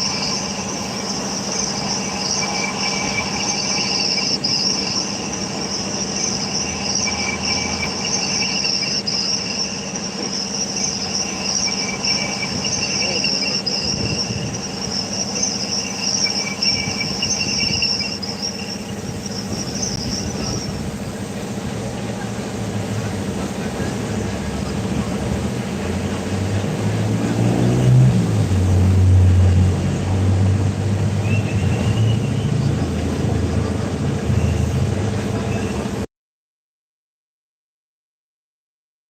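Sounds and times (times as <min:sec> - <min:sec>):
insects chirring: 0:00.0 - 0:21.6.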